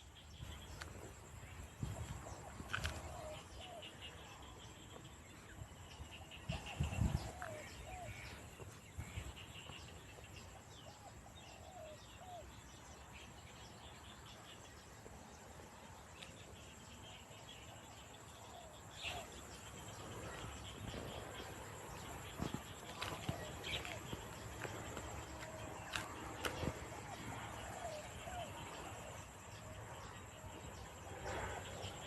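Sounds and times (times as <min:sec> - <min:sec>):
steady insect drone: 0:00.0 - 0:32.0
birds chirping: 0:15.9 - 0:32.0.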